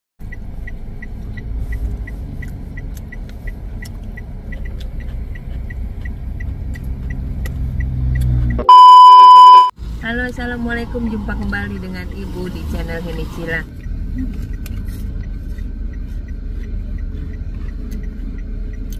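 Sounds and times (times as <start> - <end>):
electronic beep tone: 8.6 - 9.7.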